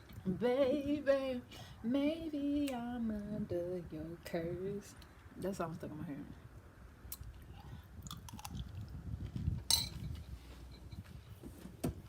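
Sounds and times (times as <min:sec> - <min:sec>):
chewing crunchy cereal: 0:07.6 - 0:09.0
spoon clinking against bowl: 0:09.7 - 0:10.0.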